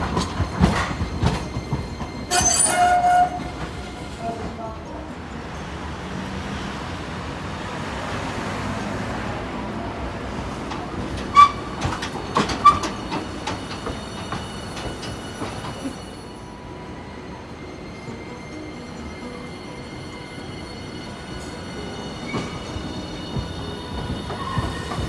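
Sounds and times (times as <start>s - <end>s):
wheel clacks over rail joints: 0.0s - 4.7s, 10.5s - 16.0s
tram rumbling past: 0.0s - 25.0s
metal wheel squeals: 0.4s - 4.3s, 11.3s - 13.4s, 17.6s - 25.0s.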